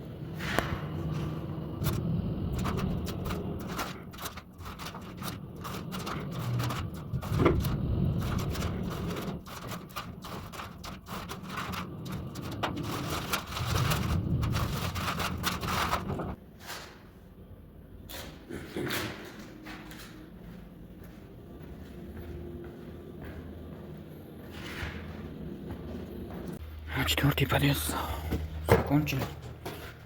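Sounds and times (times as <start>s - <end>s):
low handling rumble: 0.0s - 16.4s.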